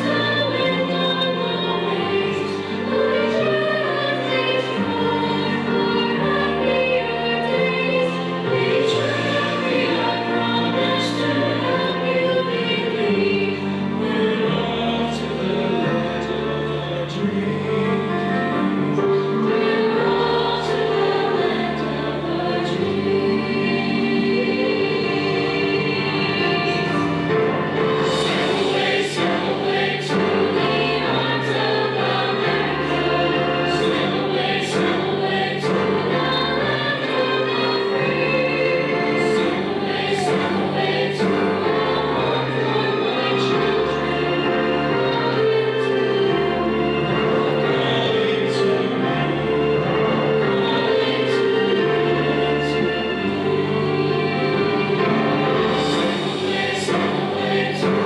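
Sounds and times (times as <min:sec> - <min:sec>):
choir singing slow song: 0:00.0 - 0:58.0
held accompaniment chords: 0:00.0 - 0:58.0.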